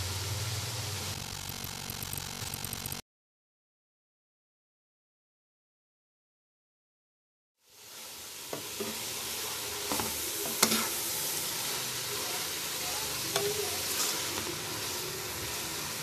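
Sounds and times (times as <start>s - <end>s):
carrots sizzling in a pot: 0.0s - 2.4s, 7.6s - 16.0s.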